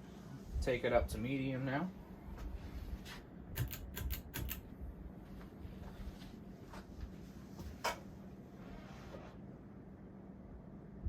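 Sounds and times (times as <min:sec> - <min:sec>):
steady low hum: 0:00.0 - 0:11.0
fan switch clicks and chain rattle: 0:03.6 - 0:04.6
sharp click: 0:03.6 - 0:04.6.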